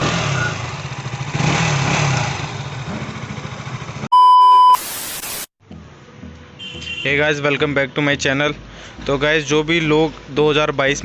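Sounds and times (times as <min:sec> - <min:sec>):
motorcycle engine revving: 0:00.0 - 0:04.1
loud steady beep: 0:04.1 - 0:05.2
static hiss: 0:04.7 - 0:05.5.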